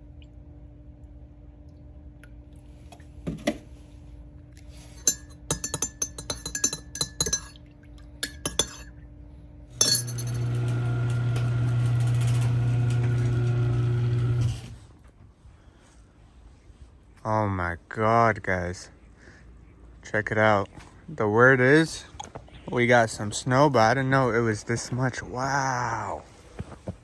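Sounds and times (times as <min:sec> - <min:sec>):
glass clinking and knocking: 0:05.0 - 0:07.6, 0:08.2 - 0:08.9, 0:09.8 - 0:10.5.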